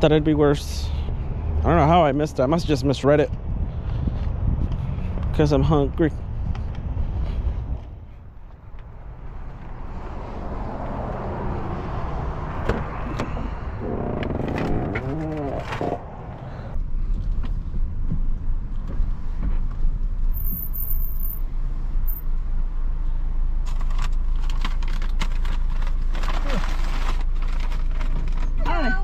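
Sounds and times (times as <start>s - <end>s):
traffic: 0.0s - 29.0s
wind: 0.0s - 29.0s
clicks and rustles: 23.6s - 28.6s.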